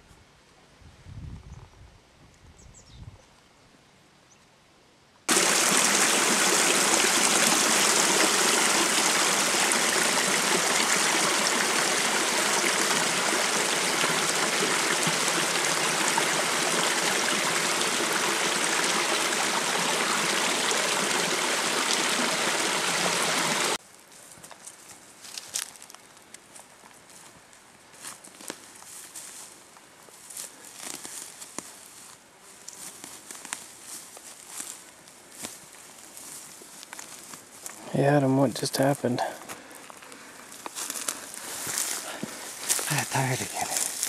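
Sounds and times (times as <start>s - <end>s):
mountain stream rushing: 5.3s - 23.8s.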